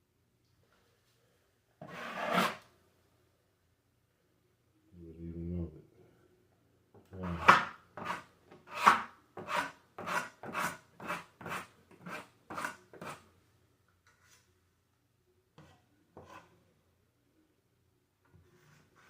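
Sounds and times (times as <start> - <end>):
drywall knife scraping compound: 1.8 - 2.7, 7.1 - 13.3, 14.0 - 14.5, 15.6 - 16.6, 18.3 - 19.0.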